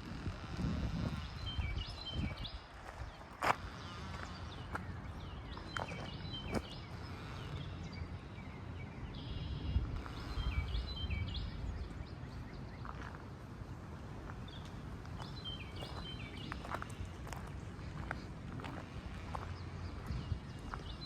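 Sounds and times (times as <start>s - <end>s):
songbirds whistling: 1.2s - 13.2s, 14.5s - 21.0s.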